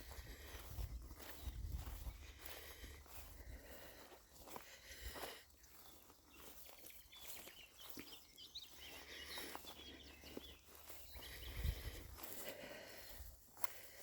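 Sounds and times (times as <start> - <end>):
wind rumble on microphone: 0.0 - 2.5, 11.1 - 12.2
footsteps on path: 0.0 - 14.0
faint bird chirping: 0.8 - 2.6, 5.3 - 13.4.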